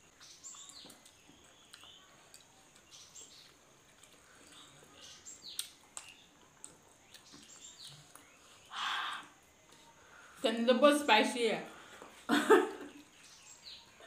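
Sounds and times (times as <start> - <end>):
small birds chirping: 0.0 - 14.0
soft clicks from eating: 0.2 - 4.7, 5.4 - 8.4.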